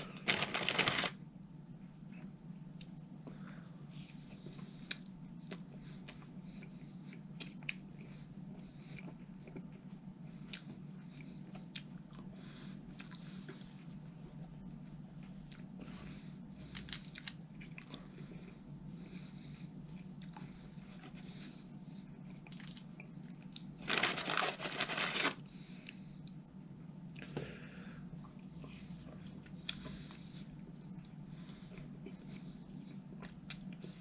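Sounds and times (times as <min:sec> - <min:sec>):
person chewing food: 0:04.0 - 0:14.0, 0:28.3 - 0:34.0.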